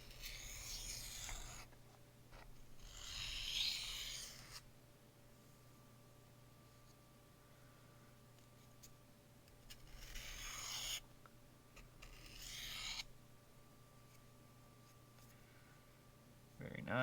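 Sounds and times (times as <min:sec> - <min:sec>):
knife rasping on sharpening stone: 0:12.1 - 0:13.0.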